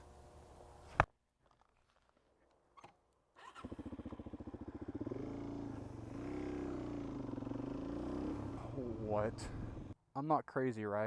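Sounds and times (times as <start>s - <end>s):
motorcycle engine idling: 3.4s - 10.0s.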